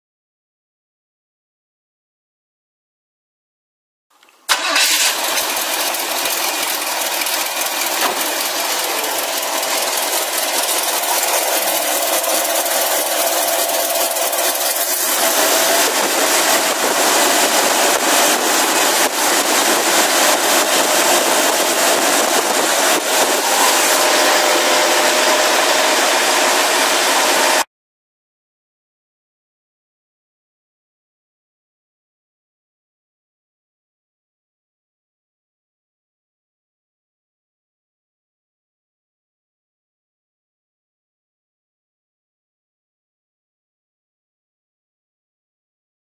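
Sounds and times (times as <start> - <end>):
car engine running: 4.5 - 27.6.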